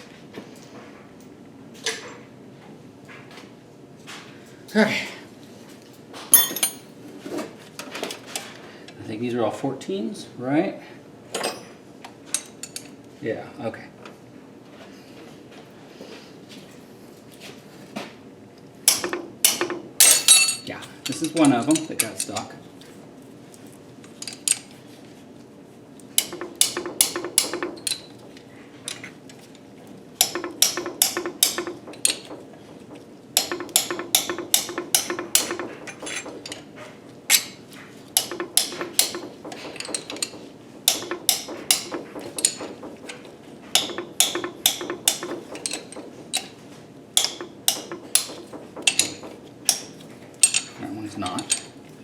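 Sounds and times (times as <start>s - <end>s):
hammer striking metal: 6.4s - 6.9s, 18.9s - 21.2s, 26.2s - 28.0s, 30.2s - 32.4s, 33.4s - 36.6s, 38.2s - 43.2s, 43.8s - 46.5s, 47.2s - 50.7s.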